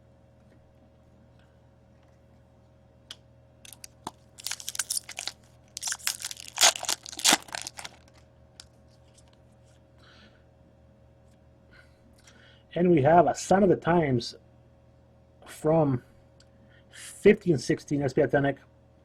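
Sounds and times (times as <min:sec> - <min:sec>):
foil wrapper tearing and crinkling: 0:03.7 - 0:08.2.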